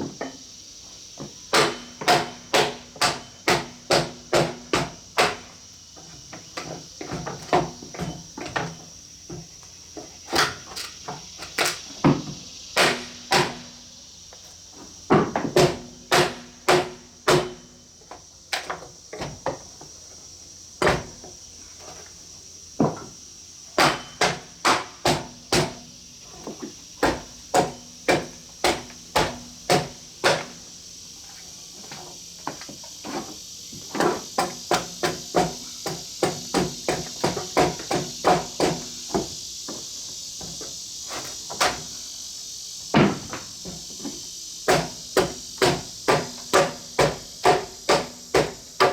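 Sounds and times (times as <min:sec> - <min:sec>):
insects chirring: 0:00.0 - 0:48.9.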